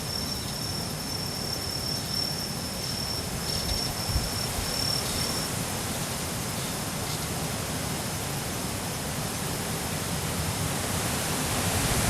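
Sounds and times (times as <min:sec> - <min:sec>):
crickets trilling: 0:00.0 - 0:12.0
wind rumble on microphone: 0:03.5 - 0:04.8, 0:11.4 - 0:12.0.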